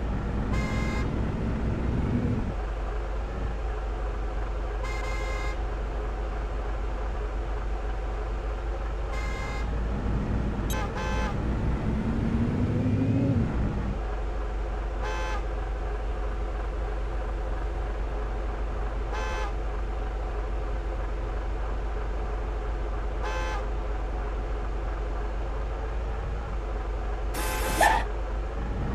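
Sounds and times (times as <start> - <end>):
truck engine running and revving: 0.0 - 28.9
short horn toots: 27.4 - 28.1.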